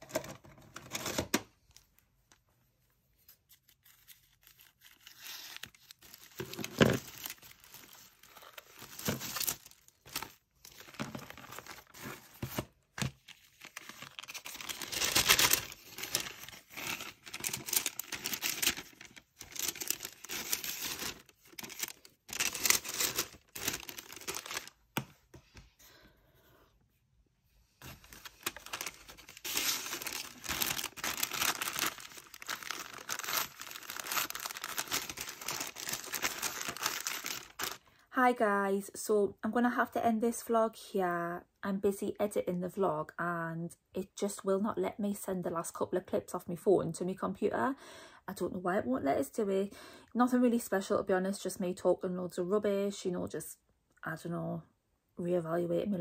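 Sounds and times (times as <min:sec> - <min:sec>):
packaging bags rustling: 0:05.5 - 0:24.8, 0:27.8 - 0:37.8.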